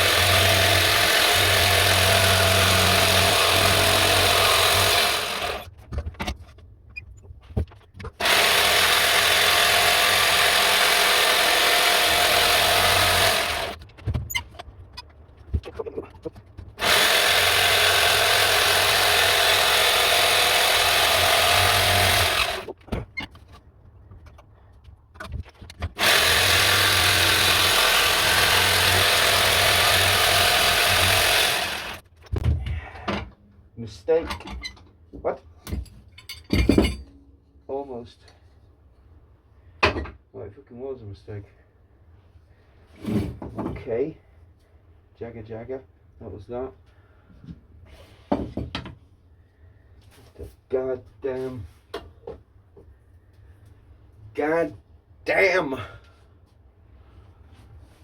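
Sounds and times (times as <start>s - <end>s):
electric power tool working wood: 0.0s - 5.7s, 8.2s - 13.8s, 16.8s - 22.7s, 26.0s - 32.0s.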